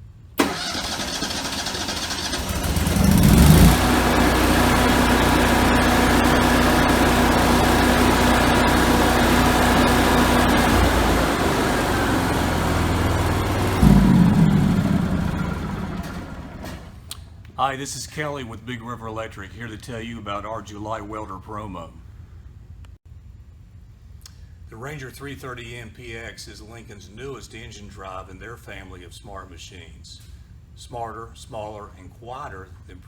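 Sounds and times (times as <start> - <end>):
generator engine running: 0.4 - 17.0.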